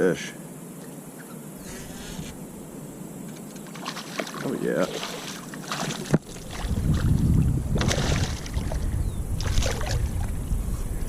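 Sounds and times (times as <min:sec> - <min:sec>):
handling rumble on microphone: 0:06.0 - 0:11.0.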